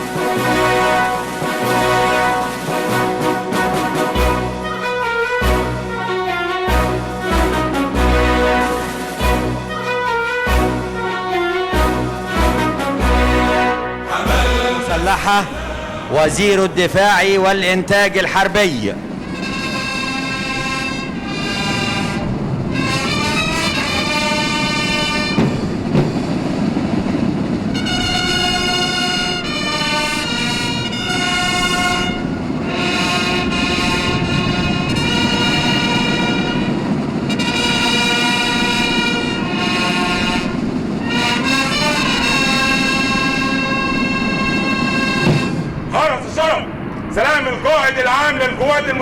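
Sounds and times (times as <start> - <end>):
brass band playing chords: 0.0 - 47.8
drums rumbling: 21.4 - 29.5, 31.5 - 46.1.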